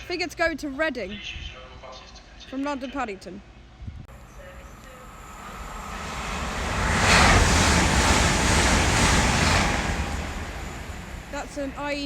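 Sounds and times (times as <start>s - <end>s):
wind buffeting microphone: 3.7s - 4.1s, 5.1s - 12.0s
train passing at speed: 4.1s - 12.0s.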